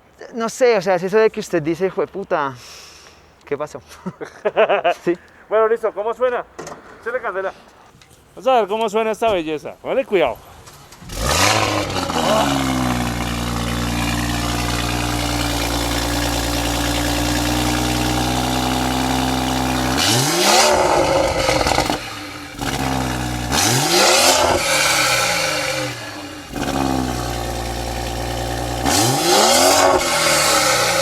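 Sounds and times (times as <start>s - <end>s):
car engine revving: 11.0s - 31.0s.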